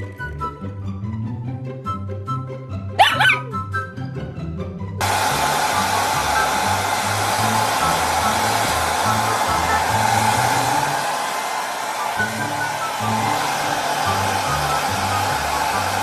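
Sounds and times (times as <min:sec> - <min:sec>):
loud steady rushing noise: 0:05.0 - 0:16.0.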